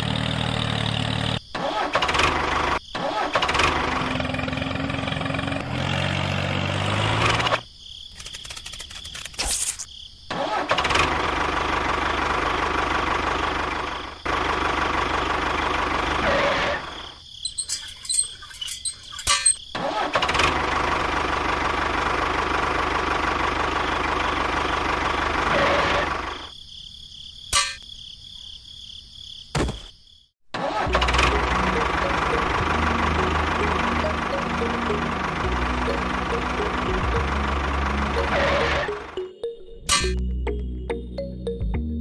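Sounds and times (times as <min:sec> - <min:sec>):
clicks and rattles: 0:17.4 - 0:19.6.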